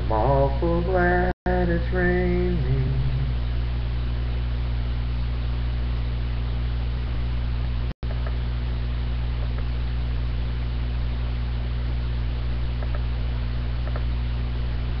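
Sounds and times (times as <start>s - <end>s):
steady electrical hum: 0.0s - 15.0s
faint ticks: 12.8s - 13.1s.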